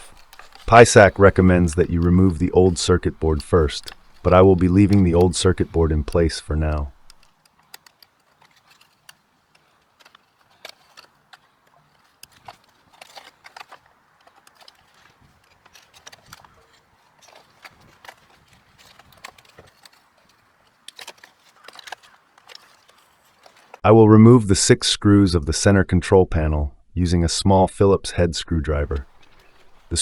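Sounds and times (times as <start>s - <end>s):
plastic wire connectors clicking: 0.0s - 23.8s.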